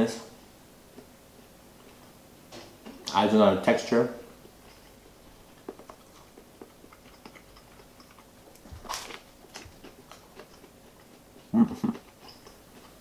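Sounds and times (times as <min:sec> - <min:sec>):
person chewing sandwich: 0:04.4 - 0:13.0.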